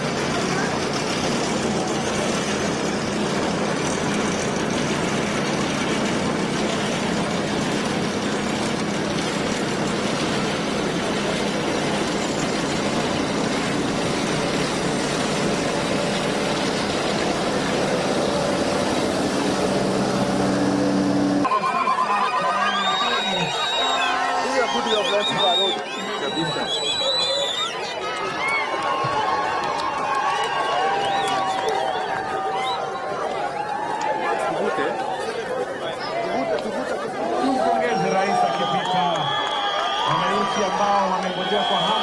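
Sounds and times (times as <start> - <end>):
vehicle engine running: 0.0 - 21.5.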